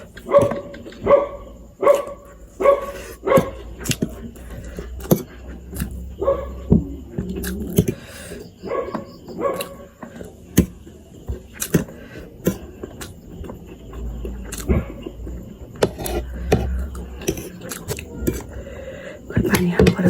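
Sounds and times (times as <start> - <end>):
chewing and mouth noises: 7.2 - 8.3, 11.5 - 15.4, 16.1 - 18.6.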